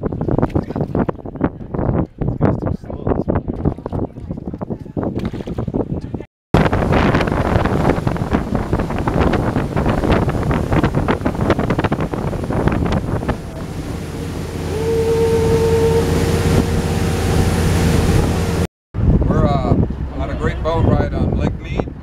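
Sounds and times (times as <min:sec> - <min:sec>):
wind buffeting microphone: 0:00.0 - 0:22.0
boat engine running: 0:06.6 - 0:21.2
horn steady tone: 0:13.1 - 0:18.7.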